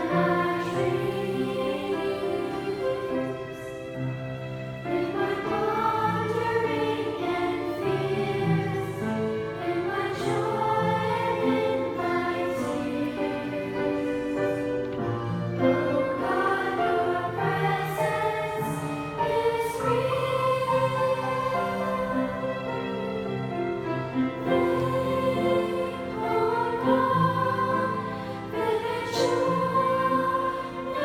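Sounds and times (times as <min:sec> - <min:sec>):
choir singing held notes: 0:00.0 - 0:31.0
classical accompaniment: 0:00.0 - 0:31.0.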